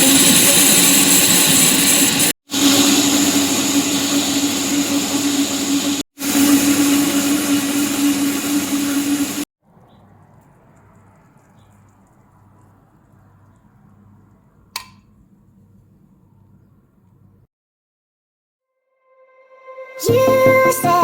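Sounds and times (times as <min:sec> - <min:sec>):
appliance electric motor running: 0:00.0 - 0:09.5.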